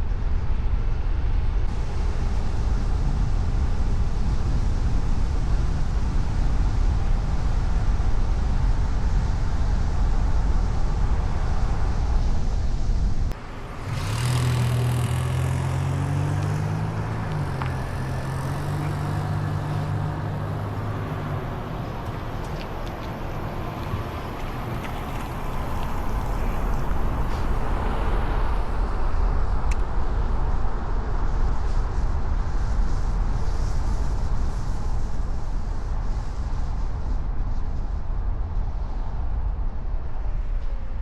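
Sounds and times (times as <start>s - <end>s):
low rumble: 0.0s - 41.0s
vehicle engine humming: 0.3s - 35.2s.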